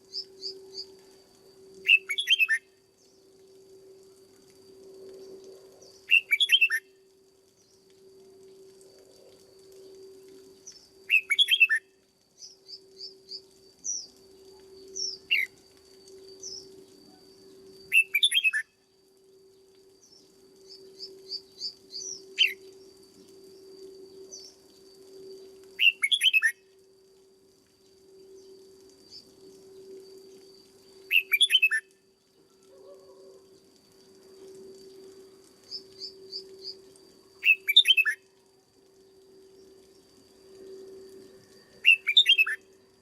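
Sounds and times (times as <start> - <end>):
low hum: 0.0 - 6.2, 6.8 - 11.1, 18.8 - 25.8, 26.6 - 31.2, 38.4 - 41.9
soft bird chirps: 1.8 - 3.2, 5.8 - 7.9, 10.6 - 18.7, 19.6 - 26.6, 30.8 - 33.5, 34.8 - 38.3, 39.5 - 42.6
bird singing warbled phrases: 1.9 - 2.6, 6.1 - 6.8, 11.1 - 11.8, 17.9 - 18.6, 21.2 - 22.6, 25.8 - 26.5, 31.1 - 31.8, 41.8 - 42.6.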